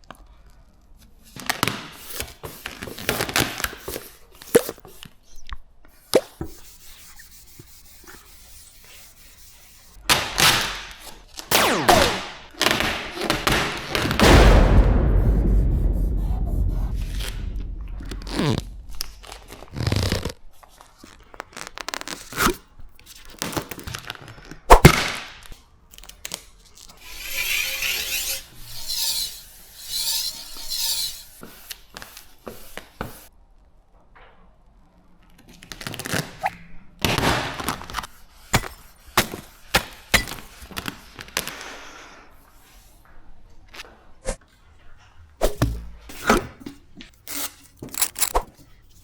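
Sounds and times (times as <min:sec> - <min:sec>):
hissing scrapes of film: 0:01.1 - 0:14.8, 0:15.8 - 0:24.4, 0:26.0 - 0:33.3, 0:35.7 - 0:42.9
sharp knock: 0:12.9 - 0:20.1.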